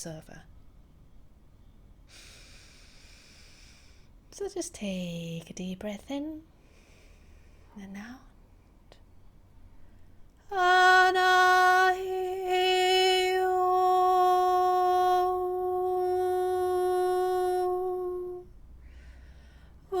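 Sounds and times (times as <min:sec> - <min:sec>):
woman breathing in: 0:06.6 - 0:07.7, 0:18.8 - 0:19.8
woman toning a long note: 0:10.5 - 0:18.5.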